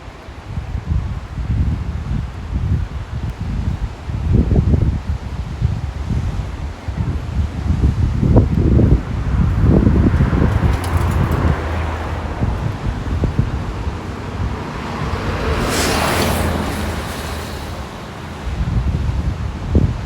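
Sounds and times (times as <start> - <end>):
wind rumbling on microphone: 0.0 - 20.0
surf rushing: 4.0 - 20.0.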